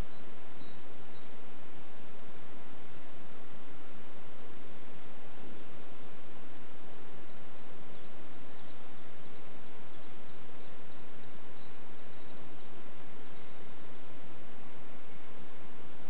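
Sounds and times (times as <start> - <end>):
songbird singing: 0.0 - 16.0
steady outdoor hiss: 0.0 - 16.0.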